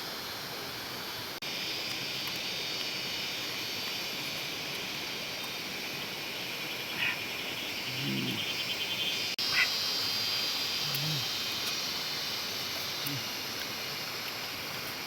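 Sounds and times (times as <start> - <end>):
high insect drone: 0.1 - 15.0
low animal call: 7.8 - 8.7, 10.8 - 11.4.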